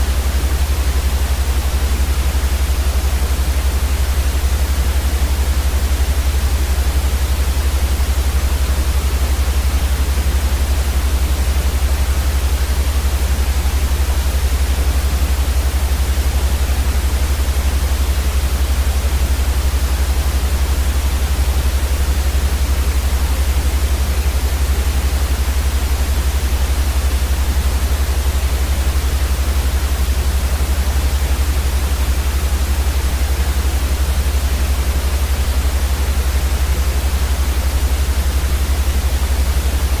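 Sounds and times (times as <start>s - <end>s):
white noise hiss: 0.0s - 40.0s.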